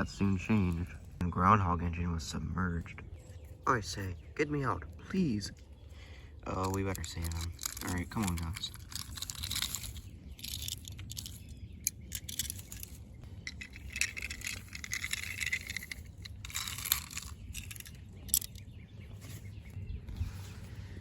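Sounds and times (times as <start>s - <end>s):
toy vehicles scraping through dirt: 6.5s - 21.0s
plastic clicks and rattles: 6.6s - 18.7s.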